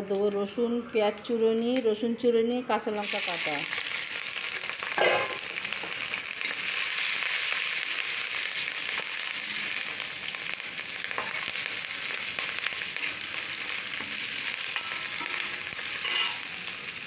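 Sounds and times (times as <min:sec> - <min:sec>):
vegetables sizzling in hot oil: 0:03.0 - 0:17.0
metal spatula scraping pan: 0:14.8 - 0:16.4.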